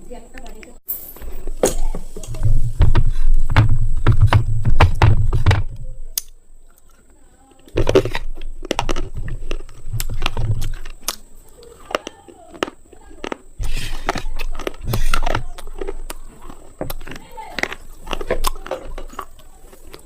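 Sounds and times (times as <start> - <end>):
heavy low thumps: 2.4 - 6.0
slate pencils crunching: 6.8 - 20.0.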